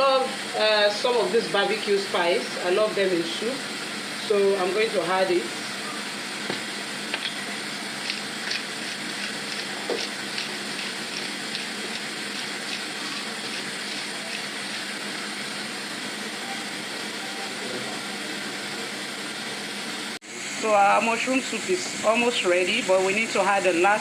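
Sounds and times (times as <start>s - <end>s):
soup simmering: 6.1s - 17.1s.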